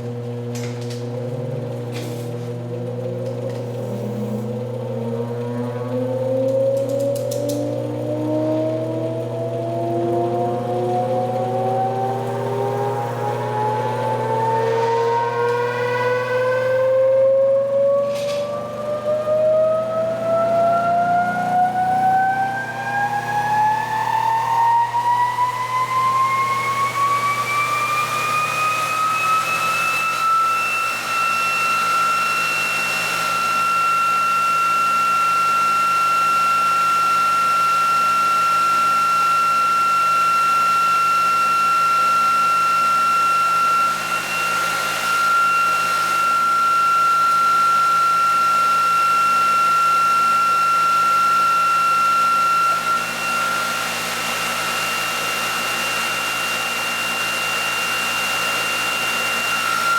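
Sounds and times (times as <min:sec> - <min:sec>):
small electric motor whining: 0:03.2 - 0:35.5.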